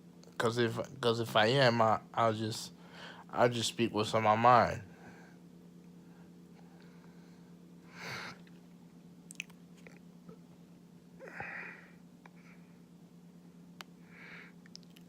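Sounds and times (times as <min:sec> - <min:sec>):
faint low hum: 0:00.0 - 0:15.0
person breathing out: 0:11.2 - 0:12.6.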